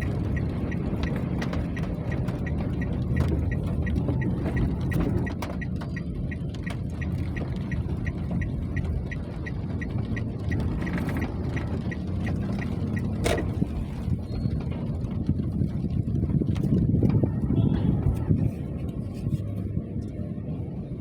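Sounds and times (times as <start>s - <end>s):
faint regular ticking: 0.0s - 13.7s.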